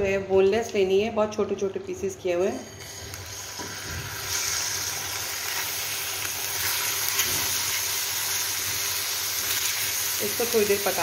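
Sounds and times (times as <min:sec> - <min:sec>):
chicken sizzling in a frying pan: 0:02.7 - 0:11.0.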